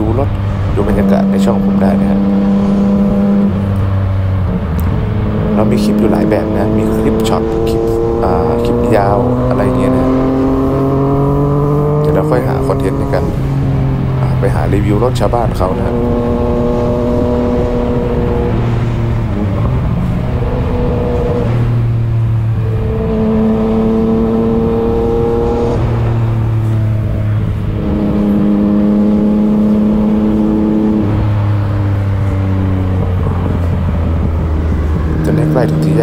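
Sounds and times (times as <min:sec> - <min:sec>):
motorcycle engine and loud exhaust: 0:00.0 - 0:36.0.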